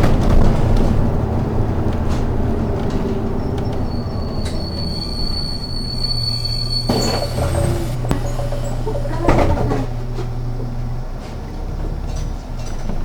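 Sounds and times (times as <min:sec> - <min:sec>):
bus engine and road noise: 0:00.0 - 0:13.0
high-pitched brake squeal: 0:03.6 - 0:09.4.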